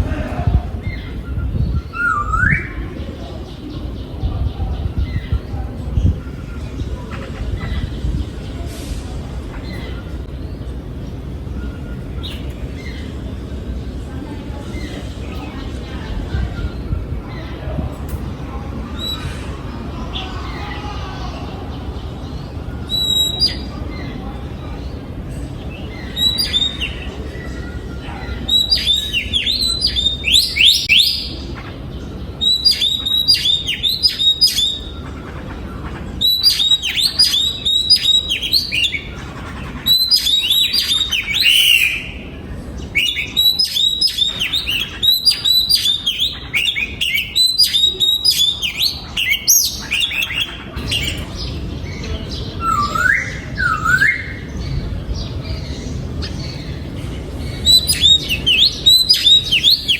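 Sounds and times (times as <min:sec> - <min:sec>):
bird singing whistled phrases: 0:01.1 - 0:02.9, 0:22.9 - 0:23.7, 0:36.2 - 0:39.1, 0:39.9 - 0:42.2, 0:43.0 - 0:51.2, 0:52.6 - 0:54.5, 0:57.6 - 0:59.9.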